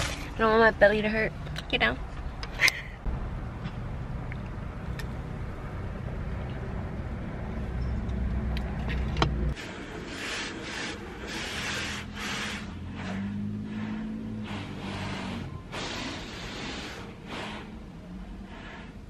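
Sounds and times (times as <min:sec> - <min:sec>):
hiss: 0:09.6 - 0:19.0.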